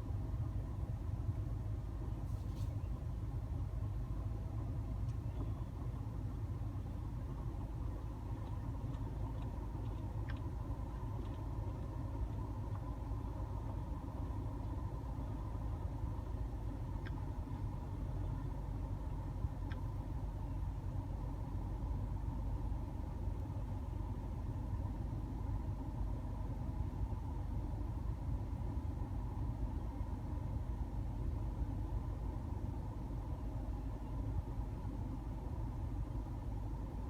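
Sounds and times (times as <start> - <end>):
air conditioning hum: 0.0 - 37.0
car engine idling: 0.0 - 37.0
faint ticks: 8.0 - 12.9, 19.1 - 20.0.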